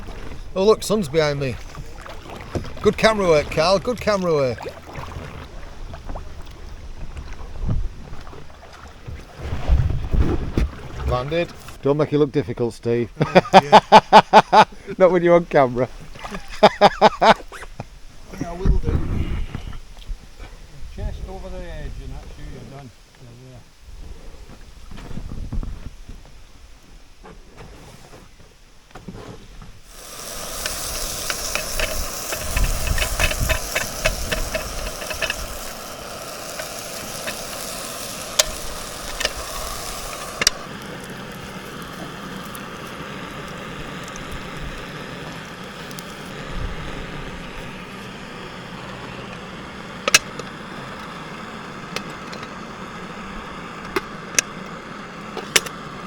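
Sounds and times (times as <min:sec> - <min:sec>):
quick rhythmic strokes: 0:29.9 - 0:43.0
batter sizzling in a frying pan: 0:29.9 - 0:51.8
utensil clicking against pan: 0:30.0 - 0:40.7.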